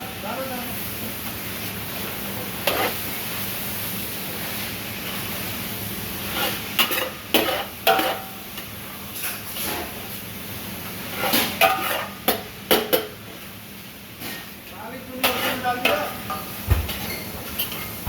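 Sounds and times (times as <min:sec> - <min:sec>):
food sizzling in a hot pan: 0:00.0 - 0:18.0
metal utensil scraping a pan: 0:02.6 - 0:03.1, 0:06.2 - 0:08.4, 0:11.0 - 0:12.2, 0:15.2 - 0:16.4.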